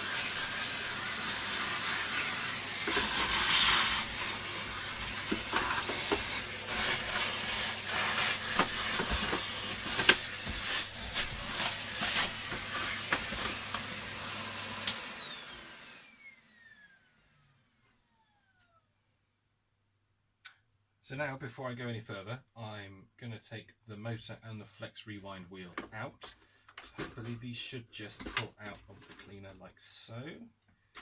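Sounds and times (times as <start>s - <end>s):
grit rattling up vacuum nozzle: 0.0s - 13.9s
vacuum cleaner running: 0.0s - 18.8s
vacuum nozzle knocking: 1.6s - 13.9s
motor winding down whine: 14.8s - 18.8s.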